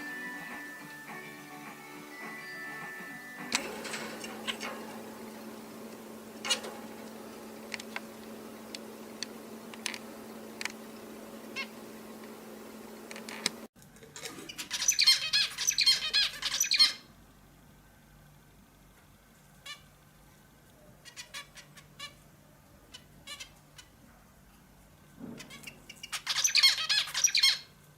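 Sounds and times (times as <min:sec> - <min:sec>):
steady low hum: 0:03.6 - 0:13.7
scattered clicks: 0:05.9 - 0:11.0, 0:13.0 - 0:13.7.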